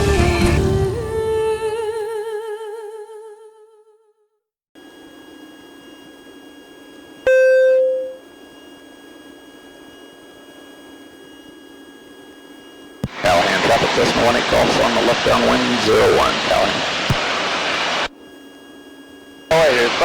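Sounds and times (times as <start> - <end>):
music: 0.0 - 2.4
thin steady whine: 4.8 - 20.0
light aircraft engine drone: 5.2 - 20.0
short loud beep: 7.3 - 8.2.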